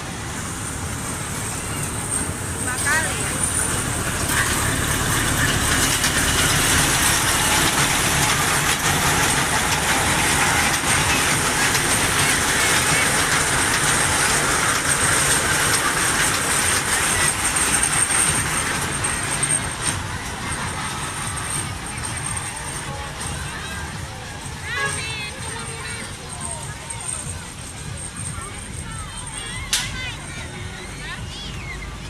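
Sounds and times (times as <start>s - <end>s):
train ride wheels rattling: 0.0s - 32.0s.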